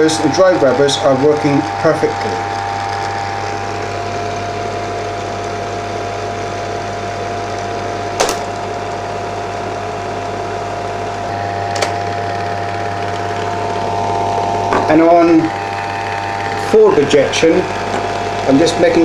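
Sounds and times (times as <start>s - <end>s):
projector motor whine: 0.0s - 19.0s
sharp clicks: 8.2s - 8.5s.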